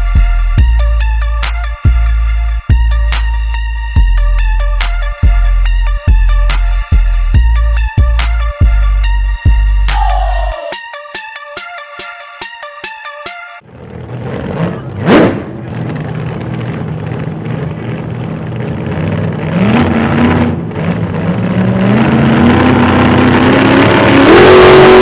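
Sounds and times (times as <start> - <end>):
car engine accelerating hard: 13.7 - 25.0.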